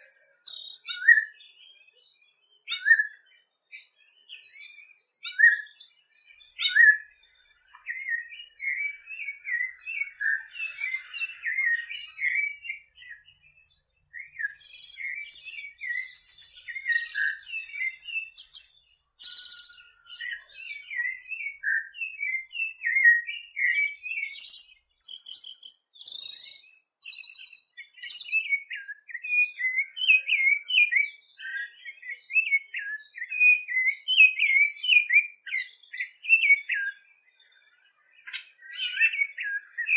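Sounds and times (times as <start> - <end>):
songbird warbling song: 0.0 - 39.9
high buzzing bird trills: 14.4 - 20.5.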